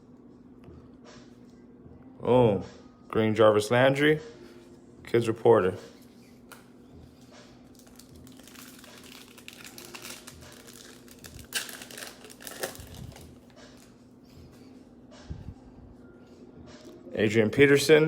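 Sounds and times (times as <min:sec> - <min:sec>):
wrappers crinkling and rustling: 0:07.2 - 0:14.0.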